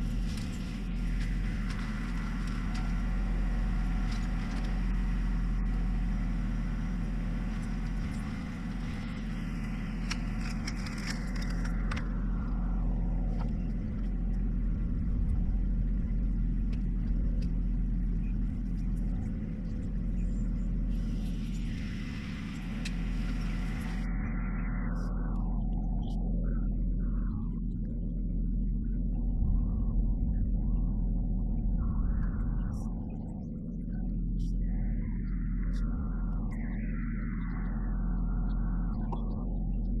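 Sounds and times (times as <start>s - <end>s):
tractor diesel engine running: 0.0s - 24.3s.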